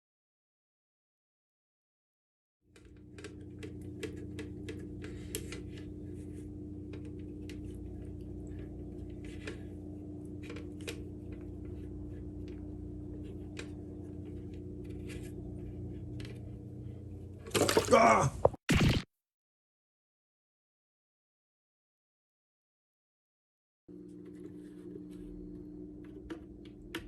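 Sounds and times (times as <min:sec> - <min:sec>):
electric pump humming: 0:02.7 - 0:18.6, 0:23.9 - 0:27.0
small water sounds: 0:17.5 - 0:18.2.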